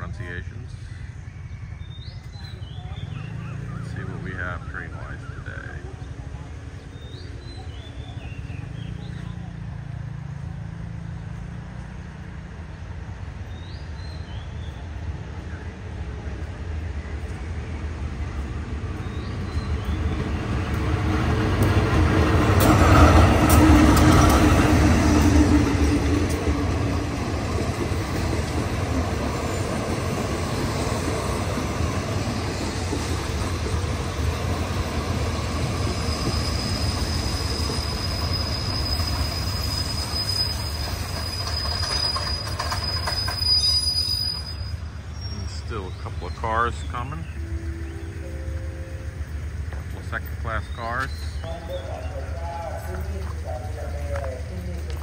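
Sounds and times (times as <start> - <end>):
passenger train passing: 0.0 - 55.0
high wheel squeal: 29.2 - 49.5.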